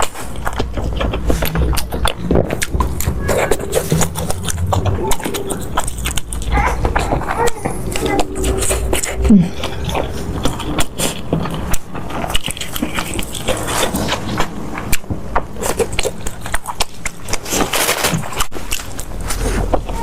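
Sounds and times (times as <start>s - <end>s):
wet chewing: 0.0s - 20.0s.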